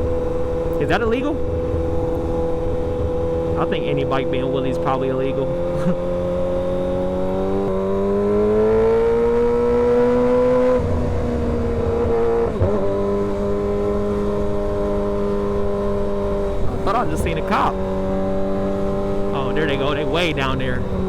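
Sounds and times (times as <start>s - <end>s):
motorcycle engine under way: 0.0s - 21.0s.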